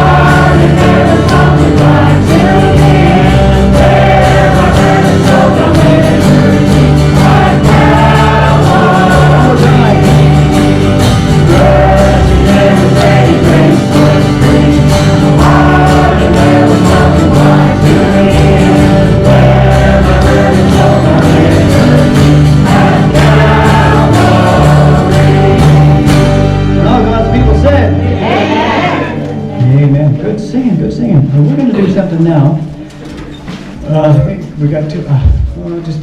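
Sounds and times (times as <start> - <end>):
choir singing a hymn: 0.0 - 26.8, 27.9 - 29.6
bass line: 0.0 - 31.5, 35.1 - 35.7
instrumental accompaniment: 0.0 - 35.8.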